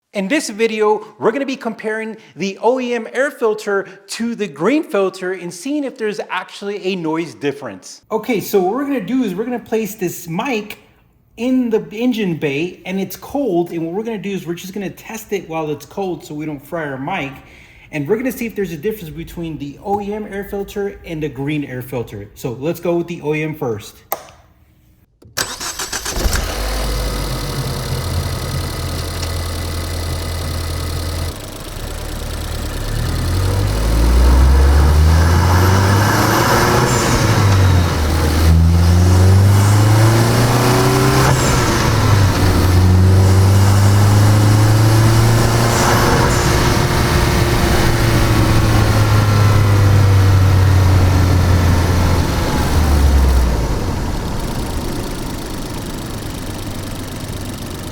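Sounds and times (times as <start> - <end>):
car engine starting: 25.2 - 57.9
car engine idling: 25.4 - 57.9
car engine revving: 25.4 - 57.9.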